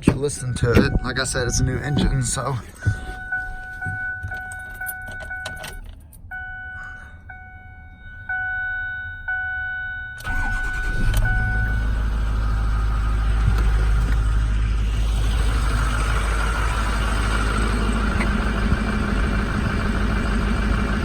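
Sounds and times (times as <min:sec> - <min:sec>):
keys clicking in ignition: 0:00.0 - 0:06.3
diesel engine starting and idling: 0:00.0 - 0:07.4, 0:10.2 - 0:21.0
dashboard warning chime: 0:00.0 - 0:13.9.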